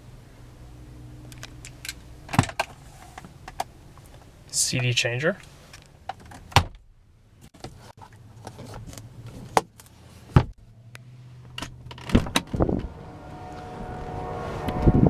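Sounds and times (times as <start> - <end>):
low steady hum: 0.0 - 5.4, 10.0 - 15.0.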